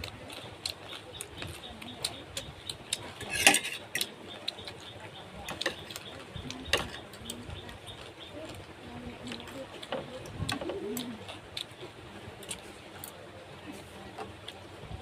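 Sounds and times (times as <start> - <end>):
dish clatter: 3.2 - 4.1
utensils clicking against dishes: 3.2 - 4.1.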